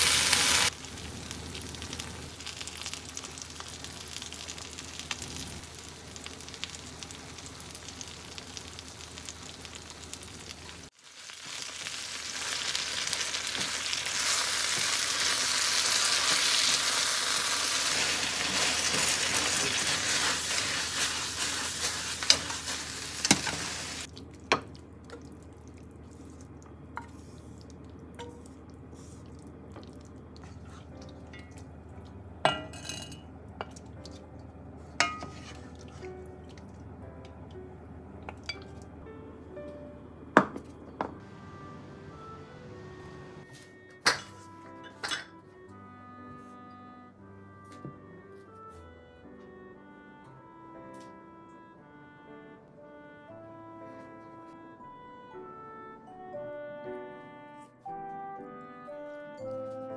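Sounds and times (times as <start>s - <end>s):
food sizzling in a frying pan: 0.0s - 24.1s.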